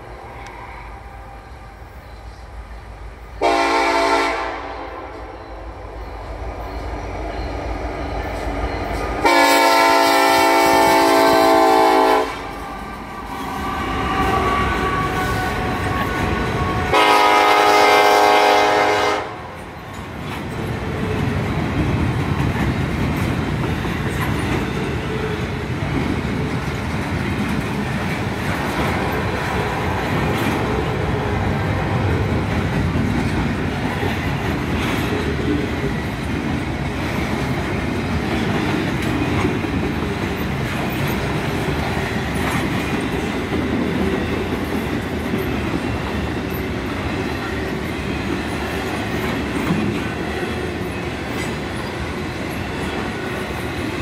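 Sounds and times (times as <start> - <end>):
low rumble of locomotive engines: 0.0 - 54.0
locomotive air horn blasts: 3.4 - 5.2, 9.2 - 12.6, 13.3 - 19.5
freight cars rolling with wheel clatter: 19.6 - 54.0.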